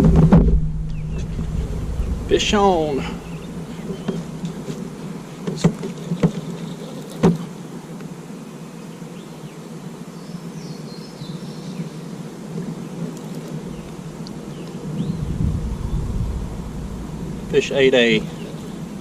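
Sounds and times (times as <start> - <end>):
steady low hum: 0.0 - 5.4, 13.5 - 19.0.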